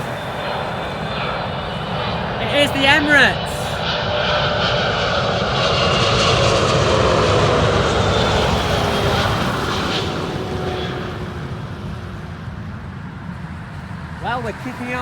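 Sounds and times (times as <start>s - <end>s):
jet engine whine sliding down: 0.0s - 12.9s
jet engines rushing: 0.0s - 14.9s.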